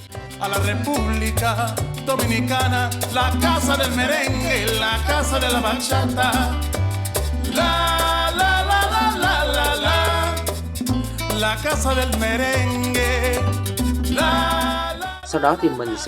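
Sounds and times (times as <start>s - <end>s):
salsa music: 0.0s - 16.0s.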